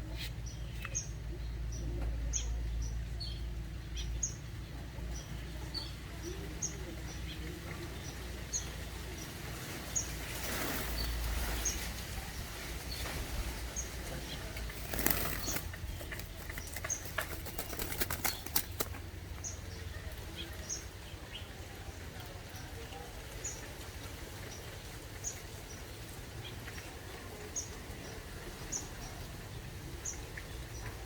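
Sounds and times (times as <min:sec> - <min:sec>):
bird wings flapping: 0:12.9 - 0:19.1.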